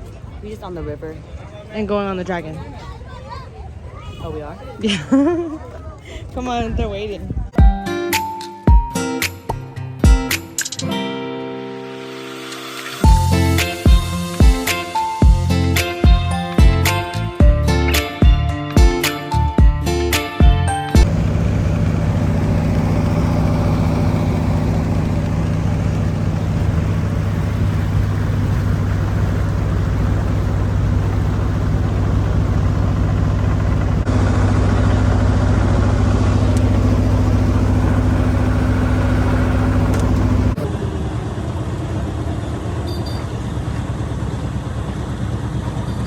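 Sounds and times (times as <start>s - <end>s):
boat engine droning: 21.0s - 46.0s.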